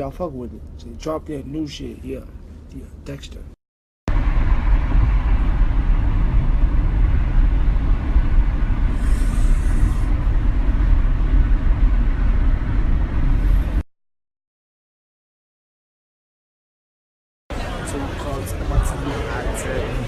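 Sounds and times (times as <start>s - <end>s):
car driving low rumble: 0.0s - 13.8s
brief hiss: 9.0s - 10.1s.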